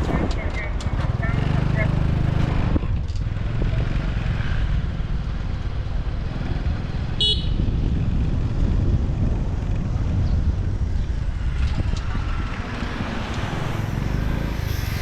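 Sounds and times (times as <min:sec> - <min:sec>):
motorcycle engine rumble: 0:00.0 - 0:15.0.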